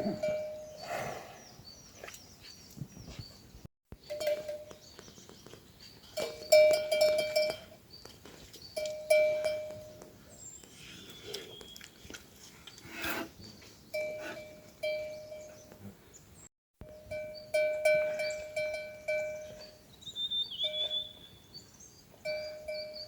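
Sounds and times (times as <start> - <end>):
livestock neck bells ringing: 0.0 - 0.9, 4.0 - 5.0, 6.0 - 7.8, 8.7 - 10.2, 13.9 - 15.8, 16.8 - 20.0, 20.6 - 21.1, 22.2 - 23.0.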